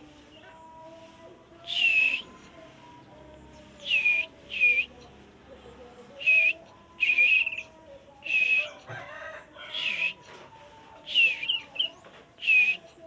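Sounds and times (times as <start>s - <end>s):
bird whistled notes: 6.2s - 7.6s, 11.1s - 12.9s.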